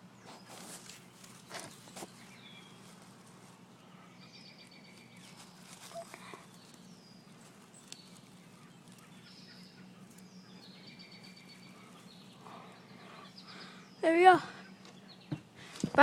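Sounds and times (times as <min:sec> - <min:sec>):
low steady hum: 0:00.0 - 0:16.0
faint bird chirps: 0:03.8 - 0:15.5.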